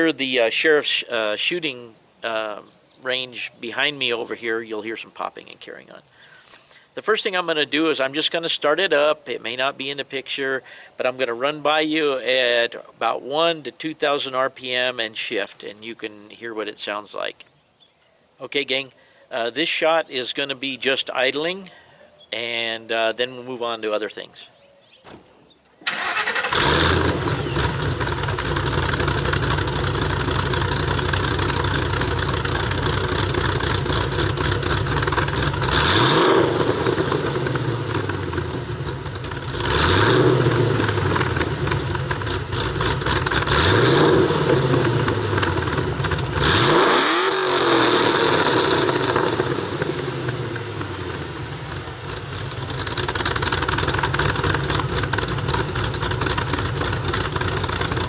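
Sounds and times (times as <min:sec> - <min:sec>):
engine idling and revving: 0:25.9 - 0:58.0.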